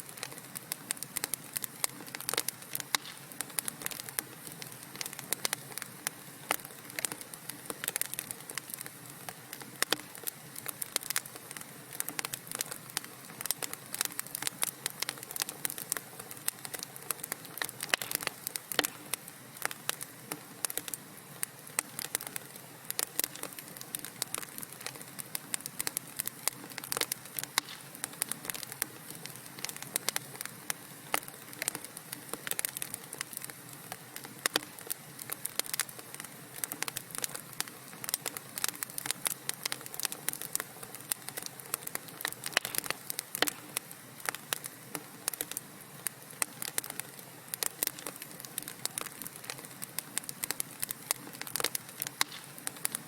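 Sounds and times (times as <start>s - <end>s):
wood fire crackling and popping: 0.0s - 53.0s.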